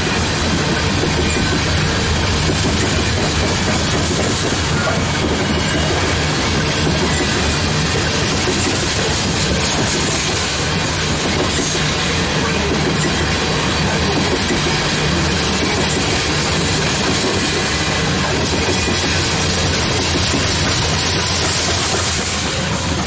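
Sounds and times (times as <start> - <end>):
steel wheels on rail: 0.0 - 23.0.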